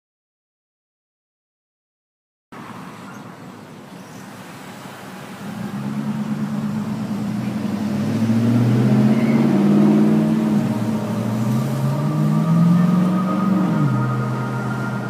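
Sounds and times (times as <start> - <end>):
vehicle engine running: 4.3 - 15.0.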